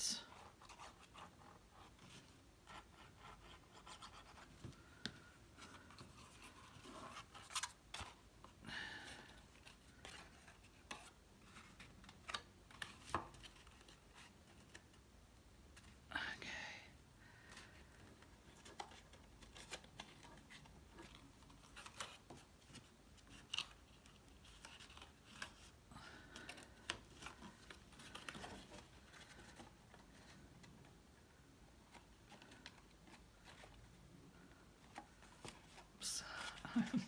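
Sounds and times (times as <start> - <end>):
faint paper rustles: 17.3 - 37.0.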